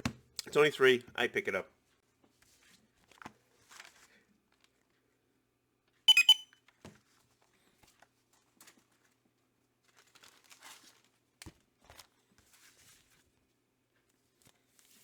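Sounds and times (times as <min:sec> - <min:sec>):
high-pitched chirp: 0:06.1 - 0:06.4.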